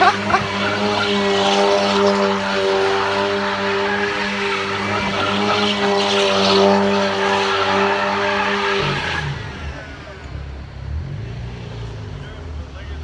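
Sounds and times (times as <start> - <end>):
tyre squealing on pavement: 0.0 - 9.9
car engine at high revs: 0.0 - 13.0.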